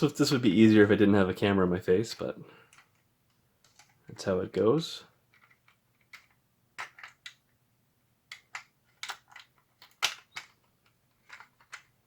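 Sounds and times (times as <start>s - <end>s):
plastic parts clicking and tapping: 2.2s - 4.1s, 5.3s - 7.6s, 8.2s - 12.0s.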